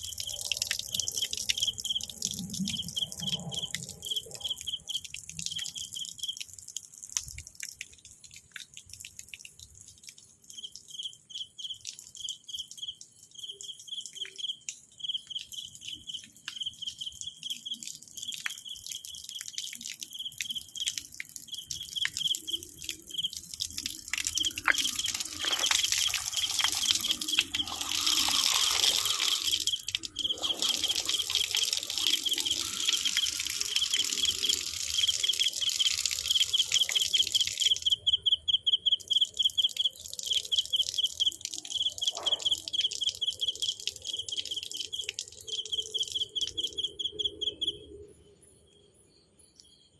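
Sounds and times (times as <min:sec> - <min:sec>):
insects chirping: 0:00.0 - 0:06.5, 0:09.7 - 0:49.9
clicks and rustles: 0:24.3 - 0:27.8.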